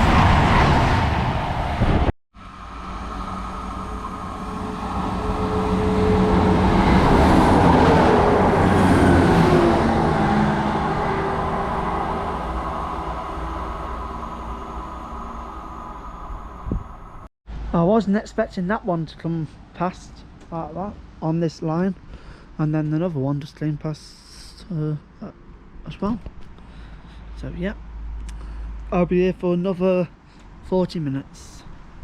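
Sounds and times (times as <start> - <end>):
train passing rumble: 0.0 - 17.8.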